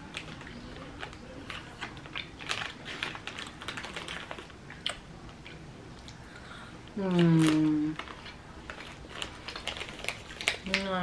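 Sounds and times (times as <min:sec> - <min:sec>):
plastic bag rustling: 0:00.0 - 0:04.6, 0:07.0 - 0:11.0
gummy candy being chewed: 0:00.0 - 0:06.2, 0:07.1 - 0:11.0.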